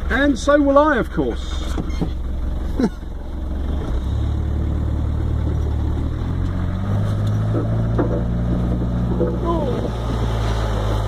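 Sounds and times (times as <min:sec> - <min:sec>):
off-road vehicle engine: 0:00.0 - 0:11.0.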